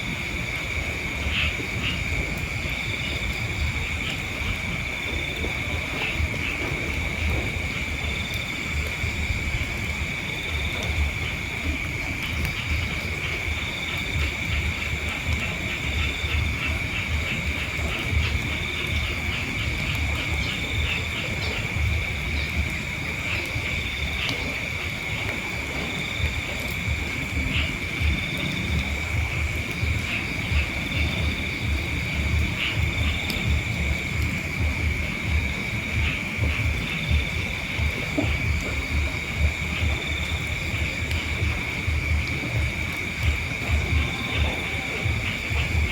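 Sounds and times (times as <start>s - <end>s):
insects chirring: 0.0s - 45.9s
pulsing insect trill: 0.0s - 45.9s
wind buffeting microphone: 0.0s - 45.9s
insect trilling: 26.0s - 45.9s.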